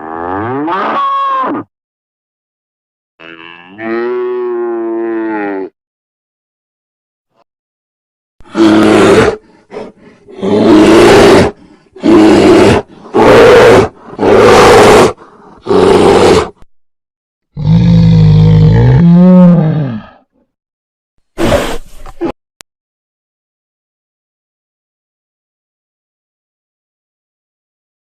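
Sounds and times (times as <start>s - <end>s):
wild animal roaring: 8.4s - 16.6s, 17.6s - 20.2s.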